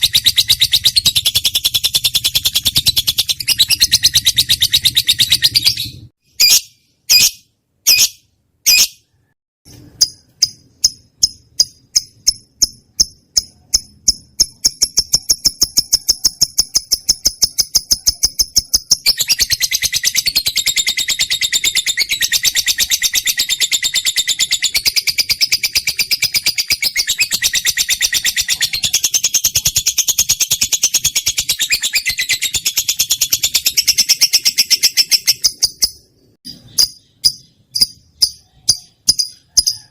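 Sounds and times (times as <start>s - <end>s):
lovebird chattering warble: 0.0s - 7.3s, 10.0s - 39.9s
lovebird shrill calls: 0.0s - 9.1s
lovebird chirping trill: 0.0s - 39.9s.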